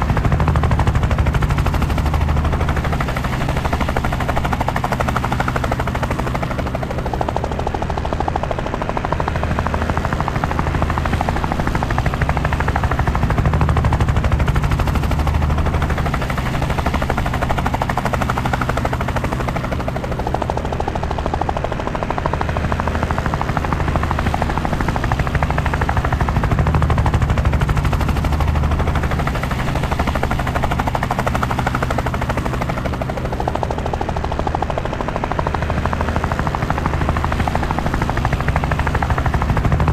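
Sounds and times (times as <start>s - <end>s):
helicopter rotor and turbine: 0.0s - 39.9s.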